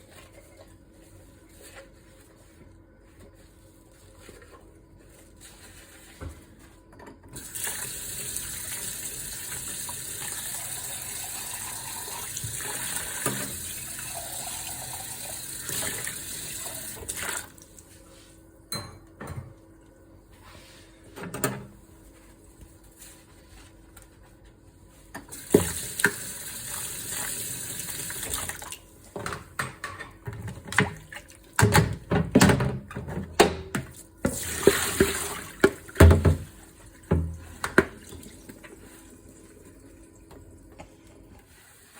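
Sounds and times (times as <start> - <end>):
dishes and pans clattering: 29.2 - 31.0.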